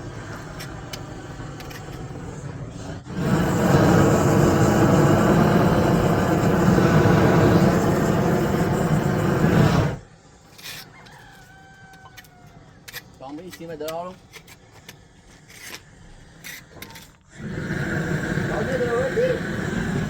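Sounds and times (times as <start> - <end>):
loud mechanical rumble with hum: 0.0 - 10.1, 17.4 - 20.0
rooster crowing faintly: 10.8 - 12.9.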